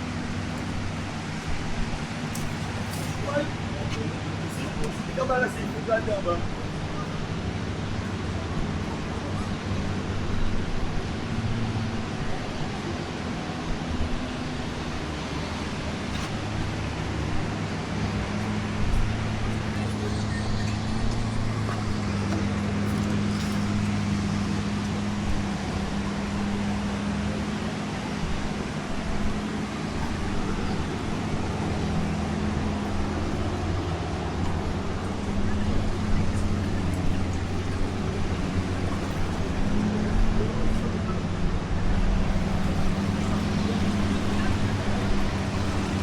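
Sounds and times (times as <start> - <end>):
low engine hum: 0.0 - 46.0
motor humming: 28.3 - 41.3, 42.0 - 46.0.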